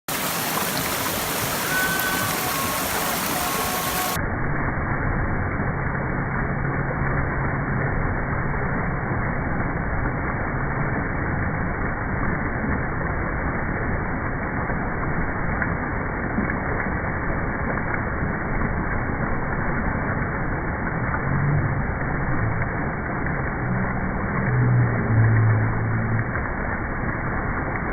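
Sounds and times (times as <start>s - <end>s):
waterfall and stream rushing: 0.1s - 4.3s.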